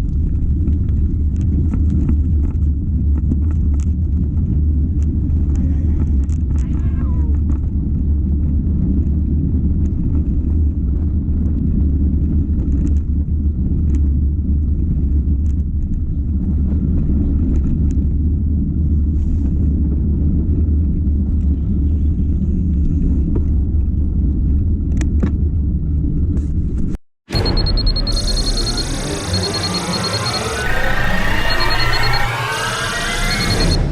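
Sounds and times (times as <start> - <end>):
wind rumbling on microphone: 0.0 - 27.0.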